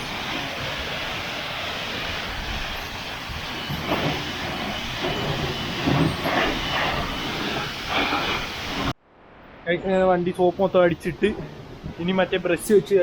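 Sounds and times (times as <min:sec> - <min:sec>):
pressure washer spraying water: 0:00.0 - 0:09.0.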